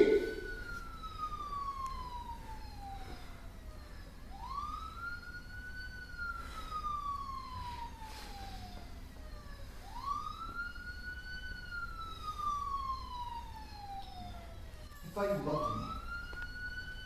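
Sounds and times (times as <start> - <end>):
siren wailing: 0.0 - 17.0.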